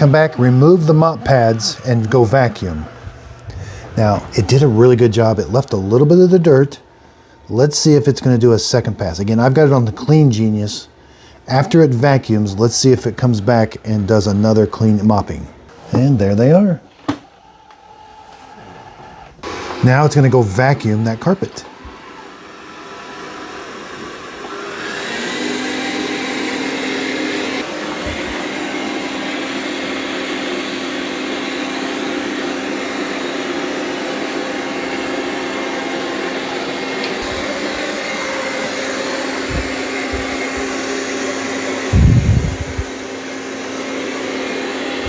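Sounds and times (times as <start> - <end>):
robot vacuum fan whining: 0.0 - 10.8, 17.3 - 45.0
low thumps: 39.4 - 40.8, 41.9 - 42.9.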